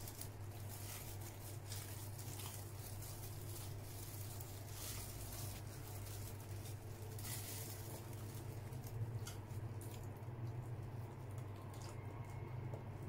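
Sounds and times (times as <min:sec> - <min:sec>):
mouth chewing soft food: 0:00.3 - 0:13.0.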